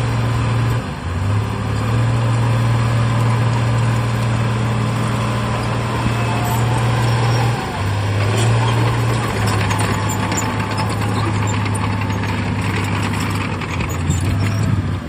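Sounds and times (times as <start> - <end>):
heavy diesel engine running: 0.0 - 15.0
rattling and clanking: 5.4 - 15.0.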